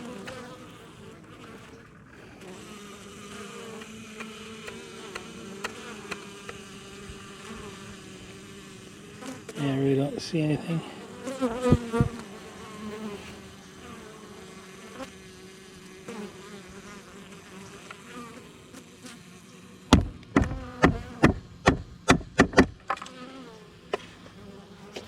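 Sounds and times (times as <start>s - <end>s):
bees buzzing: 0.0s - 25.0s
sharp knocks on hive: 4.2s - 7.2s, 11.6s - 12.2s, 19.9s - 23.1s.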